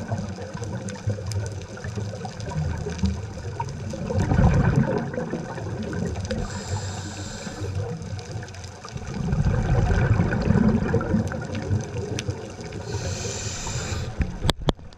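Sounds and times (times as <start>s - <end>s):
bubbling exhale underwater: 0.0s - 14.5s
scuba regulator hissing inhale: 6.3s - 8.0s, 12.7s - 14.4s
faint clicks: 11.2s - 14.9s.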